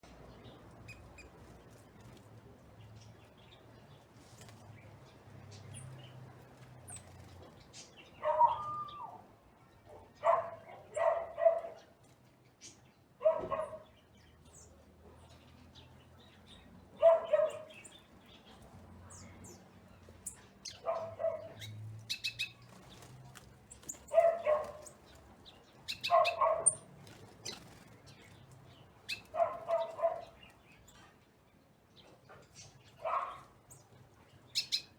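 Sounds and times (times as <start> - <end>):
small birds chirping: 0.0 - 34.9
dog barking: 8.2 - 8.7, 10.2 - 11.8, 13.2 - 13.9, 17.0 - 17.8, 20.8 - 21.6, 24.1 - 24.9, 26.0 - 26.8, 29.3 - 30.4, 33.0 - 33.5.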